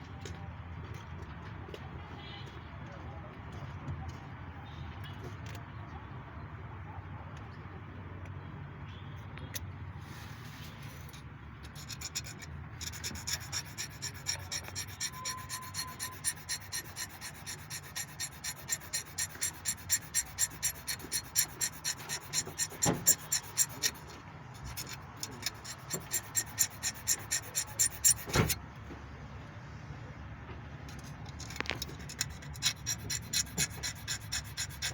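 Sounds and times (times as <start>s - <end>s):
hand tool scraping: 11.6s - 28.6s, 30.9s - 34.9s.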